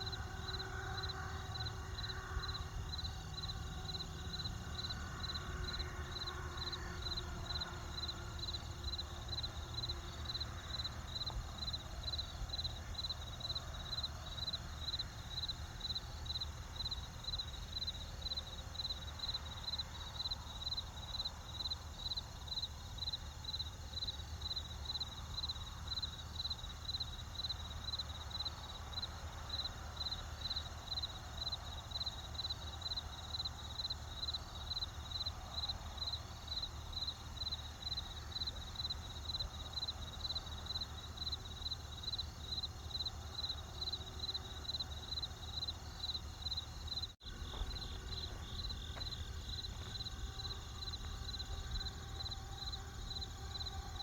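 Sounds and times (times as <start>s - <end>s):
cricket chirping: 0.0s - 54.0s
low steady rumble: 47.2s - 54.0s.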